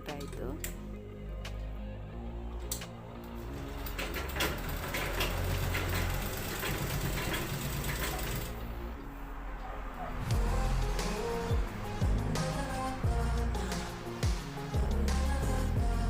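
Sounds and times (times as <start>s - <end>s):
sewing machine running fast: 3.5s - 8.8s.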